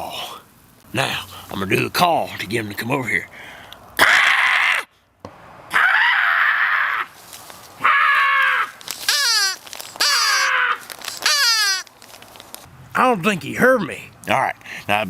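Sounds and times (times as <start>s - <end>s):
person imitating bird call: 9.0s - 11.9s.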